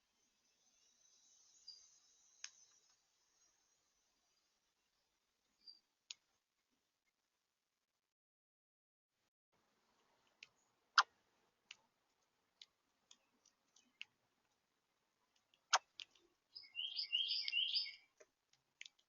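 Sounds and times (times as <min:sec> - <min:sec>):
high bird chirping: 0:16.5 - 0:18.1.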